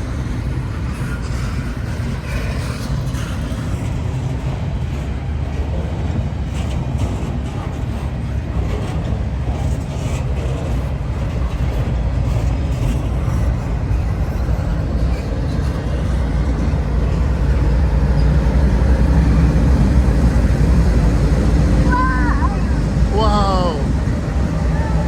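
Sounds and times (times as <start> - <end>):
heavy vehicle engine rumble: 14.8 - 25.0.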